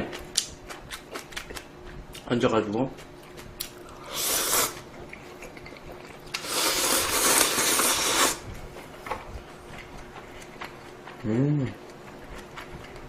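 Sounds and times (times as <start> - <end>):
person slurping noodles: 4.0 - 4.8, 6.4 - 8.4.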